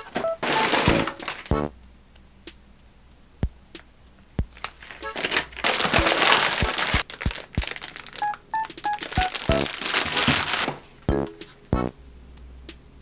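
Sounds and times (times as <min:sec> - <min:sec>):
paper and plastic packaging rustling: 0:00.0 - 0:01.5, 0:04.6 - 0:11.6
packs knocking on a table: 0:04.6 - 0:10.8.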